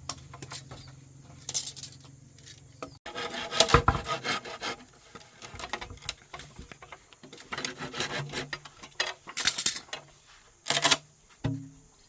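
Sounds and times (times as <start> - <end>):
hand tool scraping wood: 2.5 - 11.0.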